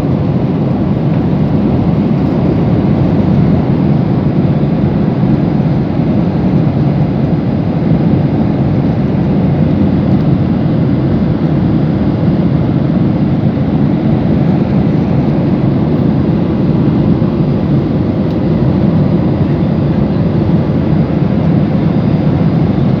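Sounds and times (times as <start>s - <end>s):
jet cabin engine and airflow noise: 0.0s - 23.0s.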